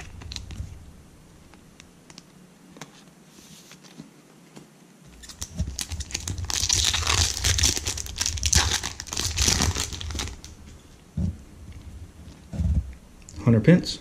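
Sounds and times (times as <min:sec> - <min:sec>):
card pack wrapper crinkling: 0:00.0 - 0:00.6, 0:05.2 - 0:10.6.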